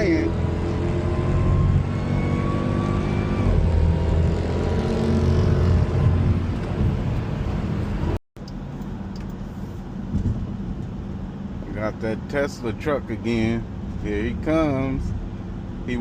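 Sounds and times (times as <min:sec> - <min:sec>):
car engine accelerating hard: 0:00.0 - 0:08.2.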